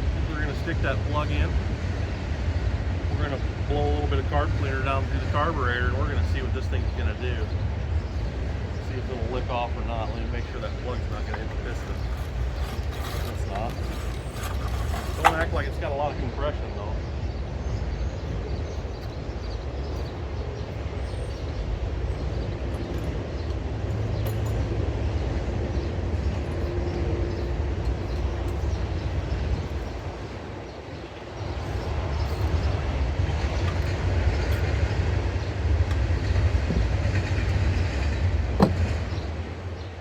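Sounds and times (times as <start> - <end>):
engine cranking without firing: 10.5 - 15.8.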